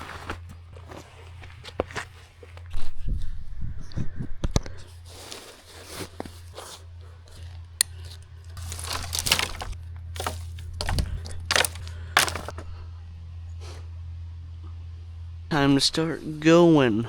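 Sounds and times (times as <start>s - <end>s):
rustling and scraping of gear: 0.0s - 3.4s, 4.9s - 12.6s
light knocks and clinks: 7.8s - 12.5s.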